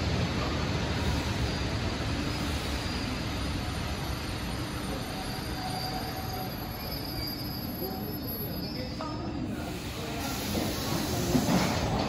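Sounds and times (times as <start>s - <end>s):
electric train rolling and braking: 0.0s - 8.9s, 9.5s - 12.0s
wheel or brake squeal: 4.9s - 9.0s.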